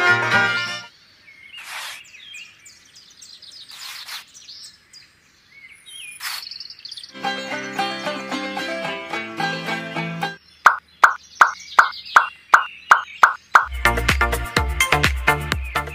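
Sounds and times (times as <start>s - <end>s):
music: 0.0s - 0.9s, 7.1s - 10.4s, 13.7s - 15.9s
birds chirping: 0.9s - 8.7s, 10.4s - 15.9s
short hissing swishes: 1.6s - 2.1s, 3.7s - 4.4s, 6.2s - 6.5s
bird trill: 10.4s - 13.9s.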